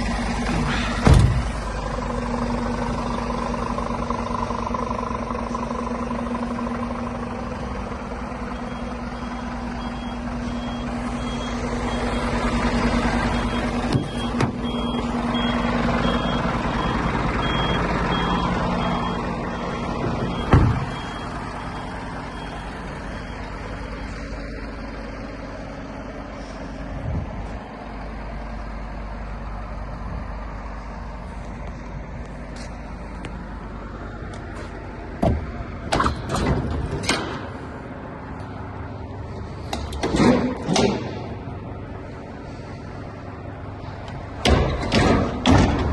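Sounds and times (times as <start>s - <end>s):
truck diesel engine running: 0.0s - 45.9s
reversing beeper beeps: 8.5s - 24.2s.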